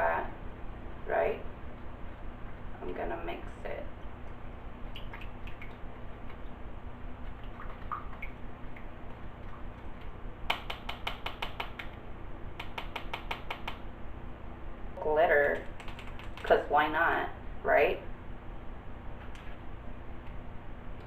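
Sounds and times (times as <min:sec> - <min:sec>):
stick clicking against cup: 0:10.5 - 0:12.0, 0:12.6 - 0:13.8.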